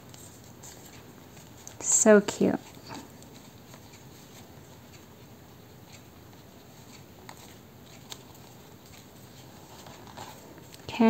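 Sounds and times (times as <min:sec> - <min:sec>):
paper and ribbon handling: 0:05.9 - 0:11.0.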